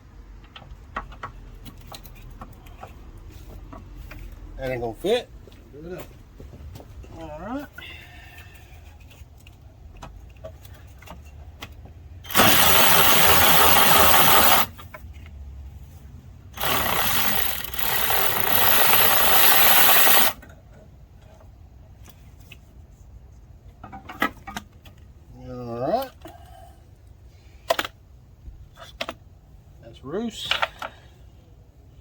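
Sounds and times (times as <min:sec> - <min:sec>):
air tool exhaust hissing: 0:12.3 - 0:14.7, 0:16.6 - 0:20.4.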